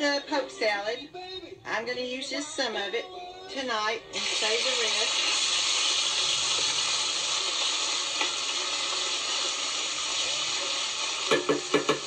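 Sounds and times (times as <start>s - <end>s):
greens sizzling in a pan: 4.1s - 12.0s.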